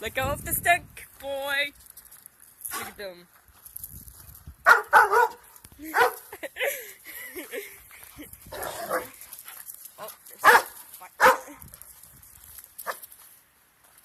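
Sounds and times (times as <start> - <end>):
dog barking: 4.6 - 6.2, 8.6 - 9.1, 10.4 - 11.5.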